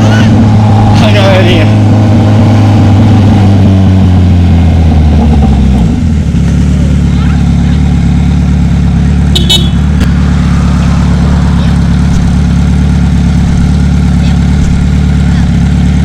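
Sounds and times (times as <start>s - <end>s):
motorcycle engine idling: 6.0s - 16.0s.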